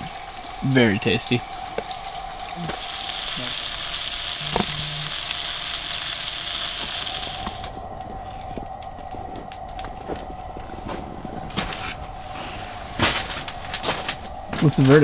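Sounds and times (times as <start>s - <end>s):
food sizzling in oil: 0.0s - 7.8s.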